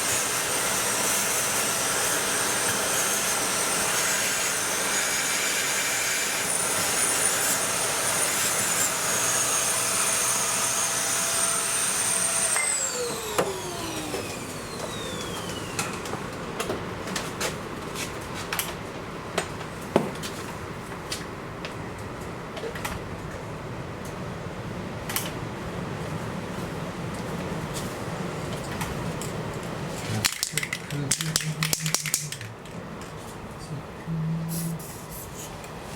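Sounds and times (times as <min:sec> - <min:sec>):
small electric motor whining: 0:00.0 - 0:16.2
clicks and knocks of handling: 0:28.5 - 0:33.2.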